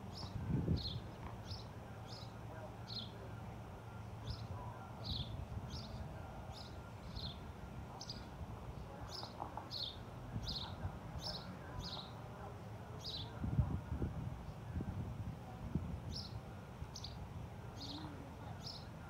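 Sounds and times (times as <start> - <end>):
low rumble of wind: 0.0 - 19.0
bird chirping: 3.9 - 7.4, 9.0 - 12.2, 17.8 - 18.9.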